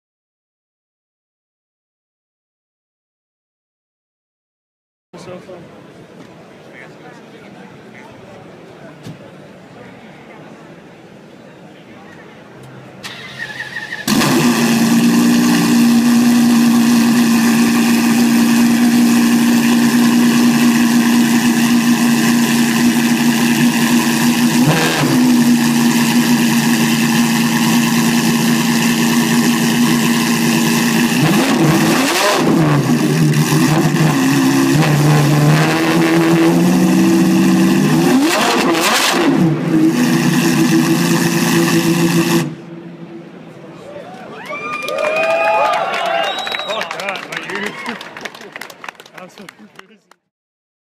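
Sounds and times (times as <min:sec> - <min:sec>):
loud car engine idling and revving: 0:13.0 - 0:43.4.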